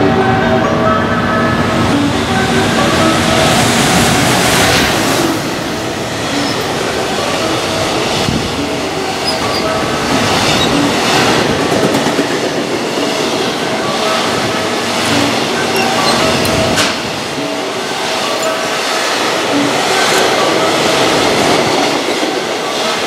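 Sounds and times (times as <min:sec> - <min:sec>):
train wheels rushing on rail: 0:01.2 - 0:23.0
wheels clacking over rail joints: 0:04.6 - 0:12.8, 0:13.4 - 0:19.0
thin ringing tones: 0:15.6 - 0:16.8.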